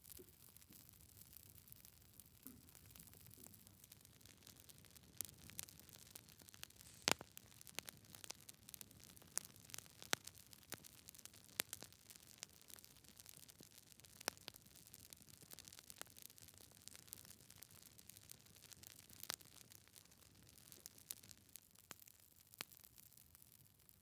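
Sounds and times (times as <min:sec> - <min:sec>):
soft low hiss: 0:00.0 - 0:09.4
wood fire crackling: 0:00.0 - 0:24.0.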